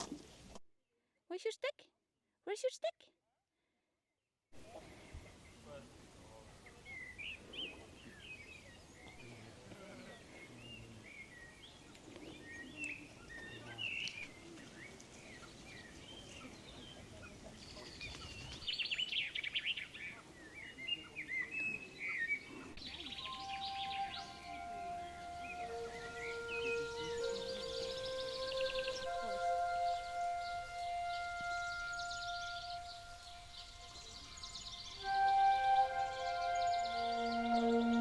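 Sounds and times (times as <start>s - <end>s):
songbirds chirping and trilling: 4.7s - 38.0s
soft sustained musical tones: 22.8s - 38.0s.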